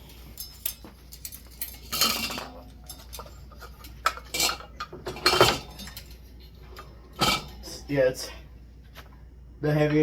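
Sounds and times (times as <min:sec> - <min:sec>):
metal hardware clinking and rattling: 0:00.0 - 0:07.7.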